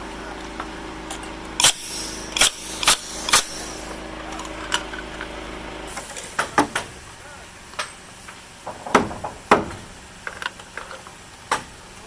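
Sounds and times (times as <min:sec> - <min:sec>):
steady hum: 0:00.0 - 0:12.0
hammer strikes: 0:02.4 - 0:03.8, 0:08.7 - 0:09.9.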